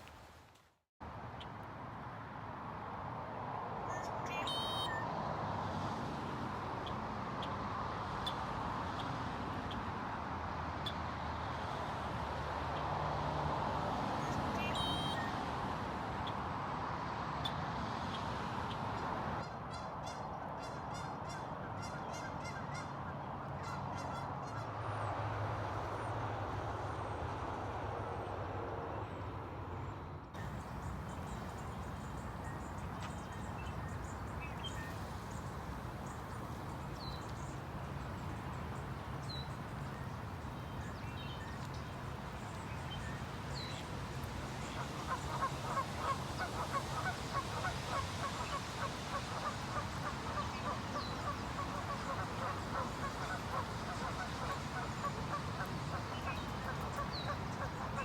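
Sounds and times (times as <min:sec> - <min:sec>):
waterfowl honking and calling: 0:04.3 - 0:05.0, 0:14.2 - 0:15.3, 0:30.4 - 0:42.5, 0:44.5 - 0:58.0.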